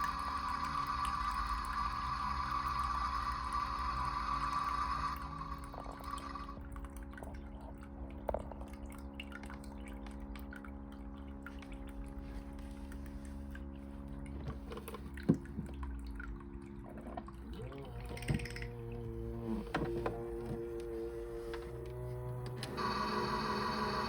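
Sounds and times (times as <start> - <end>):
water drips: 0.0 - 22.8
steady low hum: 0.0 - 24.0
water running in toy washing machine: 0.0 - 24.0
small clicks: 18.0 - 18.8.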